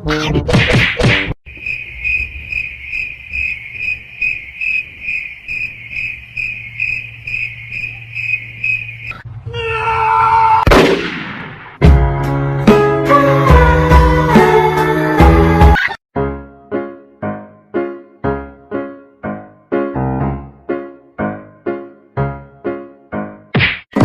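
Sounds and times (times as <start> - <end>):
high-pitched cricket-like chirping: 1.5 - 9.2.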